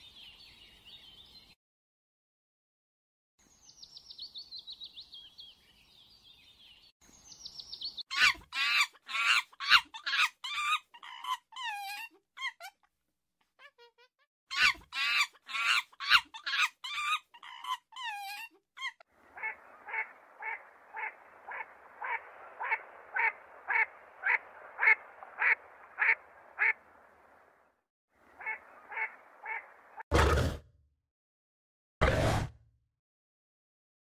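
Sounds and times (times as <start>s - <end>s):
duck quacking: 19.3s - 26.8s.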